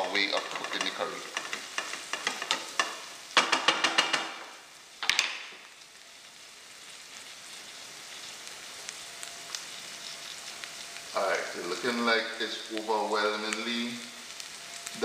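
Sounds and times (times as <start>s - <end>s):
wooden spoon scraping pot: 0.0s - 4.2s
onion sizzling in oil: 0.0s - 15.0s.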